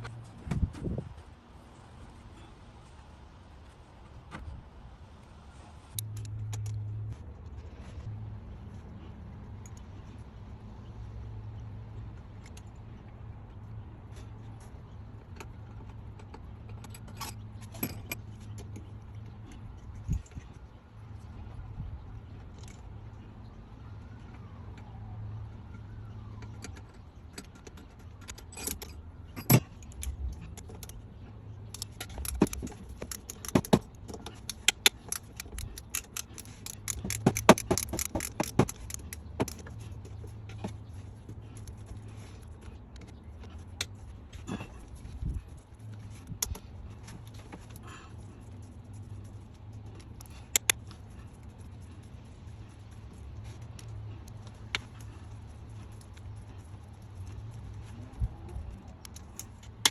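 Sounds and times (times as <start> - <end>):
metal tools clinking: 27.4 - 31.0.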